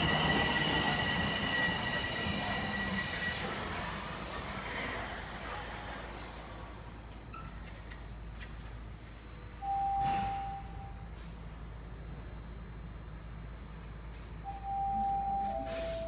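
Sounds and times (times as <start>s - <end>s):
low hum of train: 0.0s - 16.0s
door chime tone: 9.6s - 11.2s, 14.4s - 16.0s.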